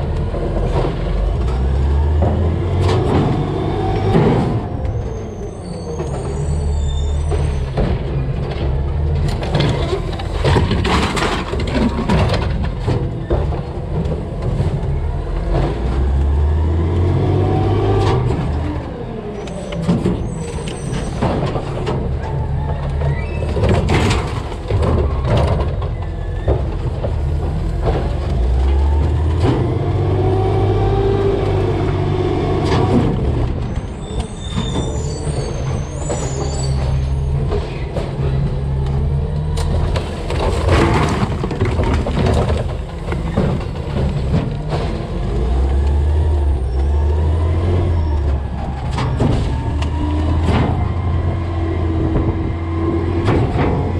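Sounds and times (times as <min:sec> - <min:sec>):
trash knocking in hopper: 0:00.0 - 0:05.0, 0:07.2 - 0:18.8, 0:19.8 - 0:53.9
garbage truck engine running: 0:00.0 - 0:53.9.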